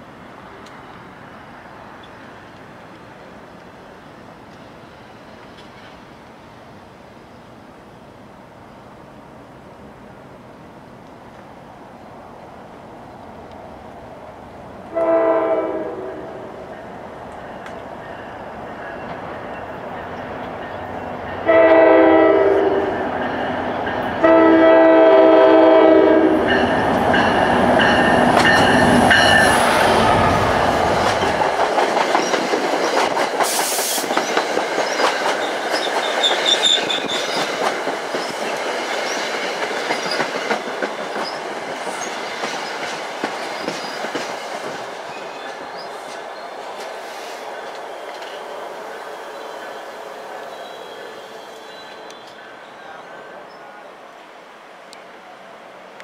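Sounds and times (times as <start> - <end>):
train horn blasts: 14.9 - 16.6, 21.4 - 23.1, 24.2 - 26.7, 49.4 - 53.0
train wheels clattering over rails: 26.4 - 48.5.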